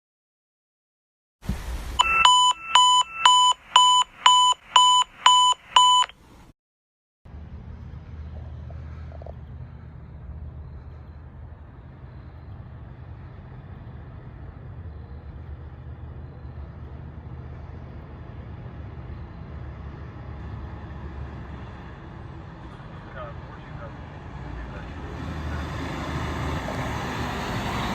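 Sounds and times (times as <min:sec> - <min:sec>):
vehicle engine rumbling: 0:07.3 - 0:27.9.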